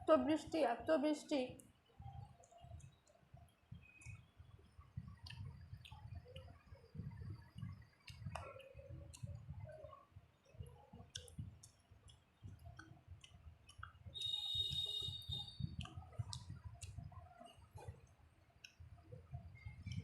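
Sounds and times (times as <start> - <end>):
wet mouth clicks and chewing: 7.3 - 18.8.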